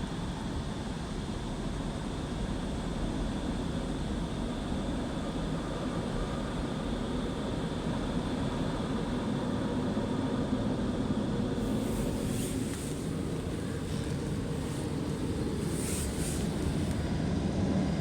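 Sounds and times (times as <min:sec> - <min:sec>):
faint constant hum: 0:09.4 - 0:18.0
car wash machinery rumbling whir: 0:11.0 - 0:18.0.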